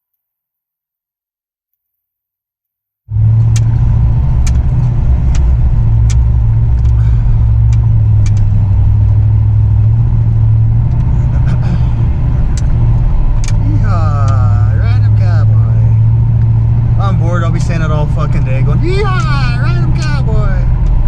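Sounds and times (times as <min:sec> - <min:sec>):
truck engine and road drone: 0:03.1 - 0:21.0
sharp ticks: 0:04.4 - 0:08.5.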